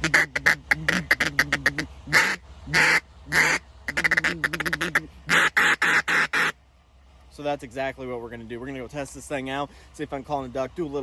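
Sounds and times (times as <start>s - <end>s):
duck call quacks: 0.0s - 6.6s.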